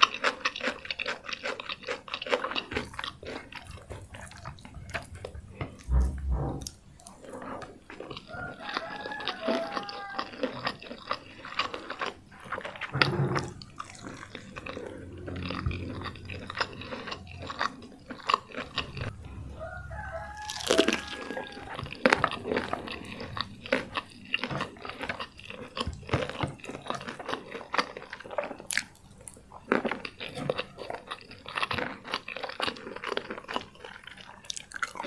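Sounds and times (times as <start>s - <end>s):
chewing crispy fried chicken: 0.0s - 35.0s
dull low thumps: 4.8s - 6.8s, 18.8s - 20.3s.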